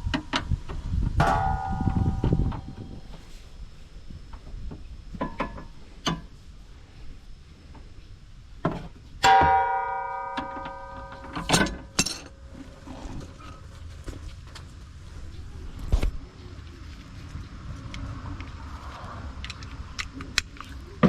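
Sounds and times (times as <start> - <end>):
ringing metallic clang: 1.2 - 3.1, 9.2 - 12.4
metal hand tools clanking: 10.2 - 12.4.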